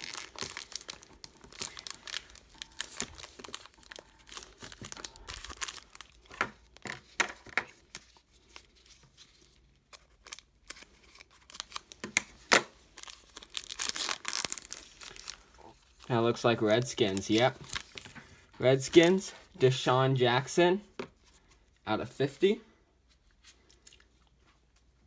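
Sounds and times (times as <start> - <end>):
plastic wrap tearing and crinkling: 0.0 - 19.3.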